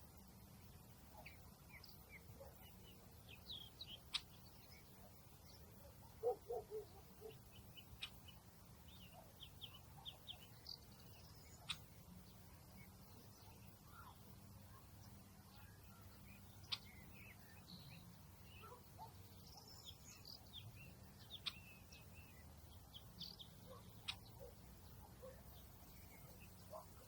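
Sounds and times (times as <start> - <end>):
small birds chirping: 0.0 - 27.0
short lower bird calls: 23.4 - 24.6.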